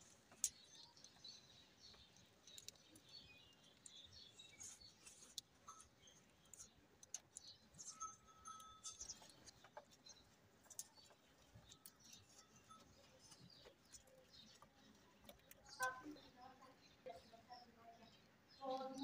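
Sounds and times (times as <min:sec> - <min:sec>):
small clicks: 0:00.3 - 0:04.3.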